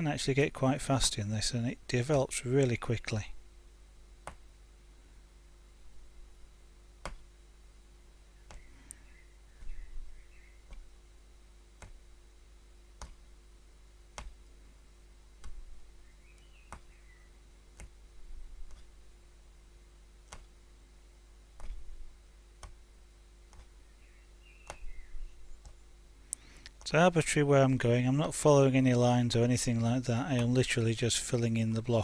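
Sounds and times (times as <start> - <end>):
punch needle clicking through fabric: 4.2 - 4.5, 7.0 - 7.3, 10.7 - 10.9, 11.8 - 12.0, 13.0 - 13.2, 14.1 - 14.5, 15.4 - 15.8, 17.8 - 18.0, 18.6 - 18.9, 20.3 - 20.5, 21.6 - 22.0, 22.6 - 22.8, 23.5 - 23.8, 24.6 - 25.0.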